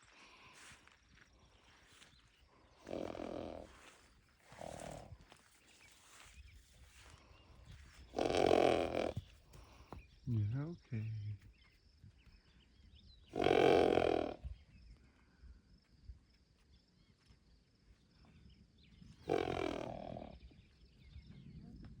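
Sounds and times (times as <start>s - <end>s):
horse calling: 2.8s - 3.7s, 8.0s - 9.7s, 13.3s - 14.4s, 19.3s - 20.4s.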